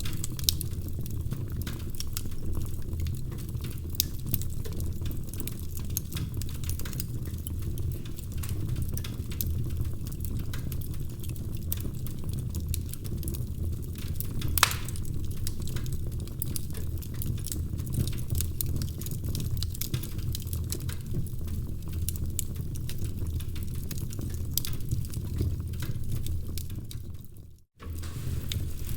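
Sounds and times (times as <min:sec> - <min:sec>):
fire popping: 0:00.0 - 0:28.9
wood fire crackling: 0:00.0 - 0:28.9.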